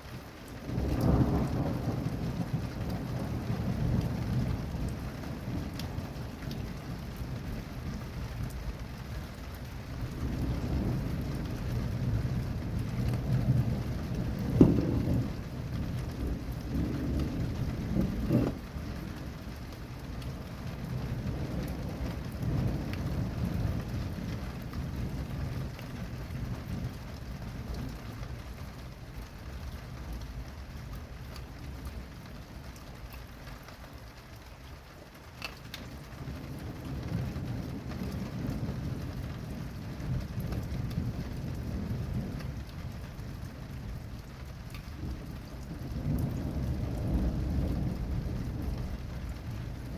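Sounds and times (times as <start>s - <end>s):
steady rain: 0.0s - 49.9s
thunder rumbling: 0.5s - 34.2s, 35.4s - 49.9s
sharp thunder cracks: 13.2s - 18.8s.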